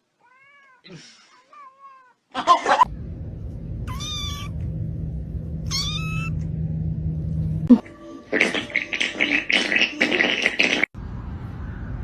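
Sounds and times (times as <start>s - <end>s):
steady low hum: 2.8s - 7.8s
cat meowing: 3.9s - 4.6s, 5.7s - 6.4s.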